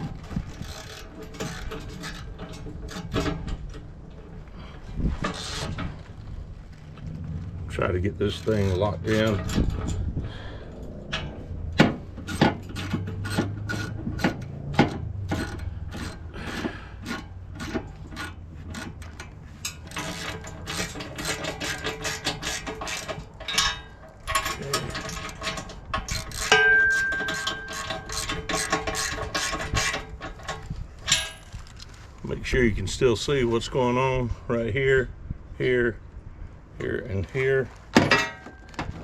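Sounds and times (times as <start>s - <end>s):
metal clicks and clanks: 0.0s - 32.0s, 36.8s - 39.0s
ringing metal note: 26.5s - 28.0s.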